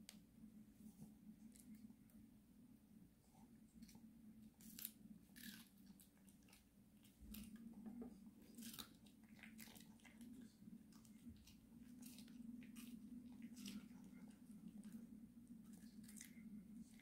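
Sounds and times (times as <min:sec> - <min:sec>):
steady low hum: 0:00.0 - 0:17.0
dog crunching bell pepper: 0:04.6 - 0:07.6, 0:08.4 - 0:15.0.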